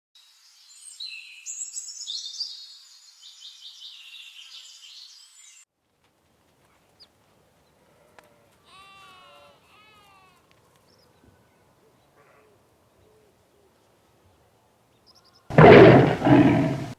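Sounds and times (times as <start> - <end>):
birds chirping and twittering: 15.5 - 16.9.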